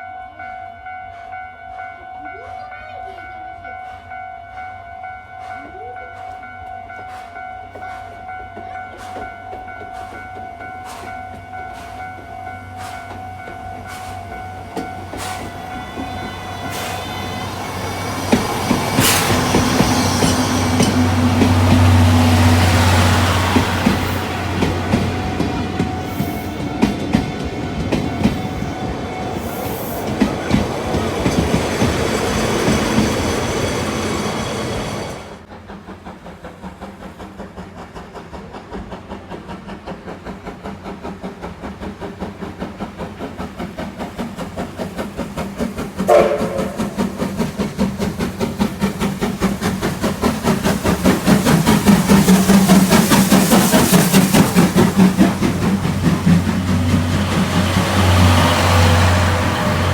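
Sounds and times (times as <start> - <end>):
train running on rails: 0.0 - 59.9
train wheels clacking over rail joints: 5.4 - 59.9.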